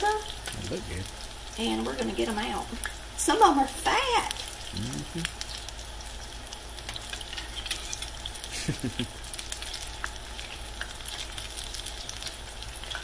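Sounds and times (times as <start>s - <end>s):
batter deep-frying in oil: 0.0s - 13.0s
metal spoon moving in oil: 6.9s - 8.4s.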